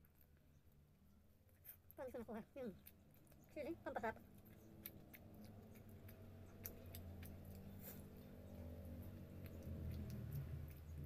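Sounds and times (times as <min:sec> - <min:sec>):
person chewing: 0:02.6 - 0:03.6, 0:04.2 - 0:11.0
wet mouth clicks: 0:04.2 - 0:11.0.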